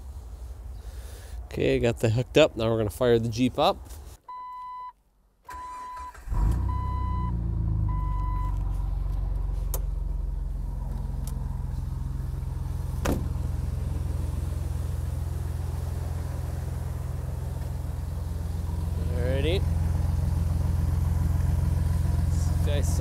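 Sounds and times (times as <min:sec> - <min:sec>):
dashboard warning chime beeping: 0:04.3 - 0:08.6
car engine starting and idling: 0:05.5 - 0:23.0.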